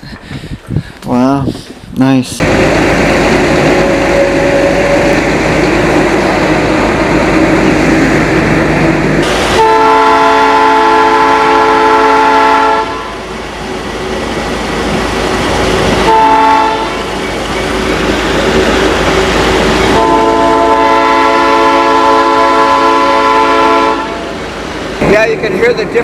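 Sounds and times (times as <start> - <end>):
train rumbling on track: 0.0 - 26.0
locomotive horn blast: 2.4 - 7.6, 9.2 - 13.3, 15.8 - 17.2, 19.6 - 24.4.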